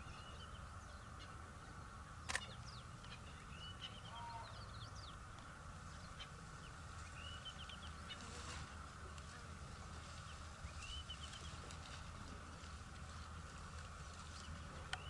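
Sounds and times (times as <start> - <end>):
bird chirping: 0.0 - 8.8, 10.2 - 11.7
outdoor hiss and rumble: 0.0 - 15.0.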